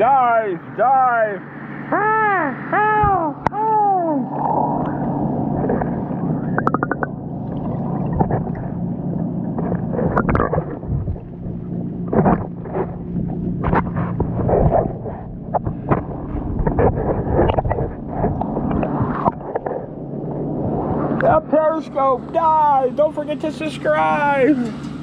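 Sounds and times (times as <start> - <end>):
steady low hum: 0.0 - 25.0
water sloshing and splashing: 3.0 - 22.4.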